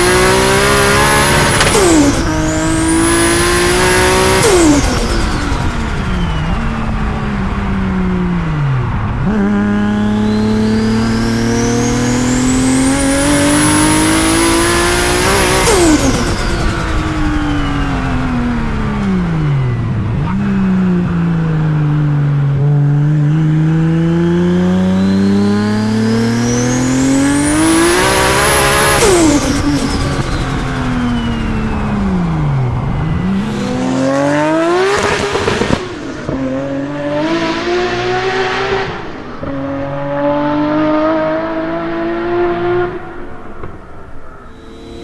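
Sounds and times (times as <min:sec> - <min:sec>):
car engine revving hard: 0:00.0 - 0:07.6, 0:08.2 - 0:21.9, 0:22.5 - 0:43.7.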